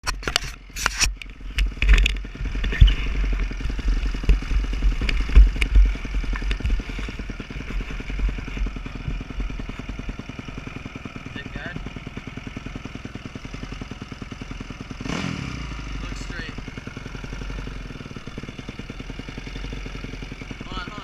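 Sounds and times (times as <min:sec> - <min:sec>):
dirt bike engine idling: 0:00.2 - 0:21.0
low thumps on microphone: 0:01.1 - 0:10.2
sharp clicks: 0:04.2 - 0:06.8.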